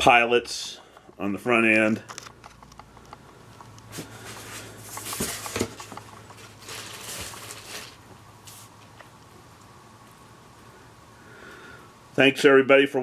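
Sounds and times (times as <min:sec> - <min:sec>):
steady low hum: 0:00.0 - 0:13.0
faint rustling and scuffing: 0:03.9 - 0:09.0.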